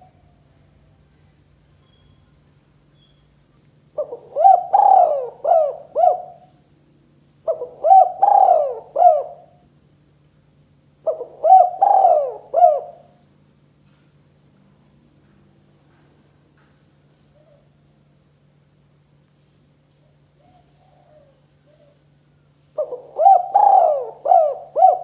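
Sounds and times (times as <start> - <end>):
faint steady hum: 0.0 - 25.0
dove cooing: 4.0 - 6.6, 7.4 - 9.6, 11.0 - 13.2, 20.4 - 22.0, 22.8 - 25.0.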